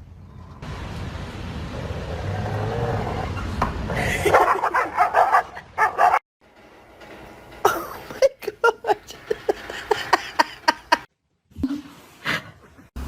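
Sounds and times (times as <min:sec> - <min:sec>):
dog barking: 0:04.3 - 0:06.2.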